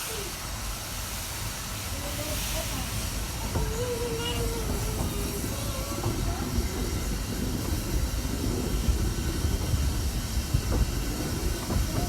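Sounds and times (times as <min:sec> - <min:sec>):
steam train: 0:00.0 - 0:12.0
wind buffeting microphone: 0:02.7 - 0:12.0.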